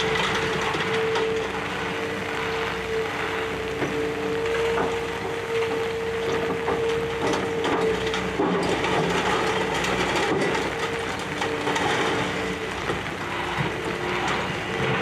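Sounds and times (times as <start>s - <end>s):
debris crunching and crackling: 0.0s - 15.0s
excavator machine whine: 0.0s - 15.0s.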